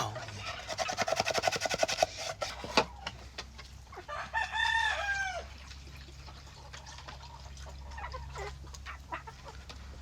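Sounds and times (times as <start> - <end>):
rooster crowing: 4.1 - 5.5.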